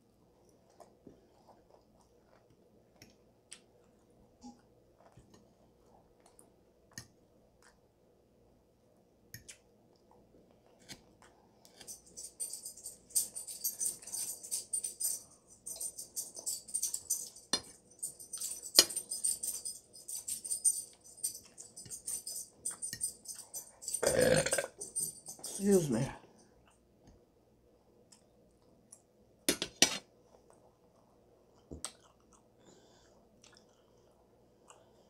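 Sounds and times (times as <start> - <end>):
crunchy chewing: 31.6 - 34.9.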